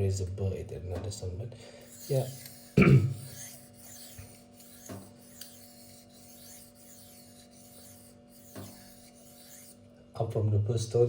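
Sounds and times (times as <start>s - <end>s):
knife scraping on sharpening stone: 1.8s - 9.8s.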